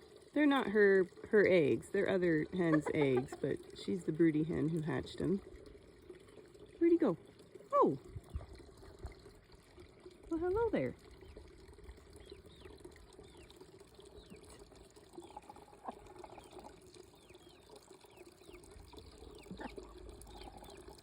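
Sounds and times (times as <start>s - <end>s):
water fountain trickling: 0.0s - 21.0s.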